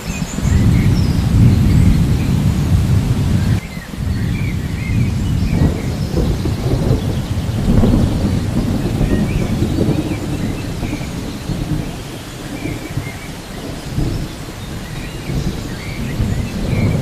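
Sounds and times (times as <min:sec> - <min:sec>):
rolling thunder: 0:00.0 - 0:17.0
steady rain: 0:00.0 - 0:17.0.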